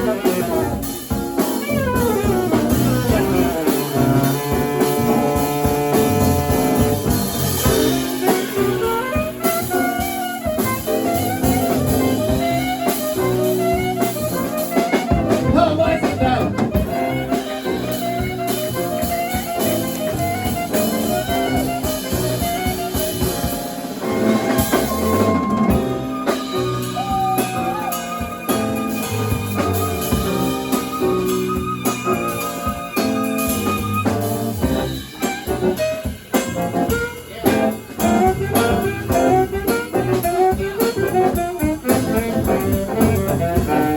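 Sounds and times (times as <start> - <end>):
drum kit: 0.0 - 43.9
rippling lead melody: 0.0 - 43.9.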